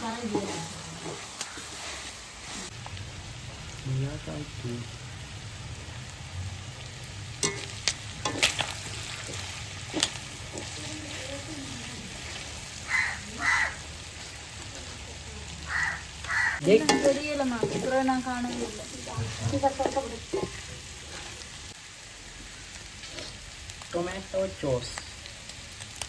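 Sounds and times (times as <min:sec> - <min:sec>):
food sizzling in oil: 0:00.0 - 0:26.0
stirring scrapes: 0:00.1 - 0:02.7, 0:07.4 - 0:15.1, 0:16.8 - 0:21.6, 0:23.0 - 0:23.4.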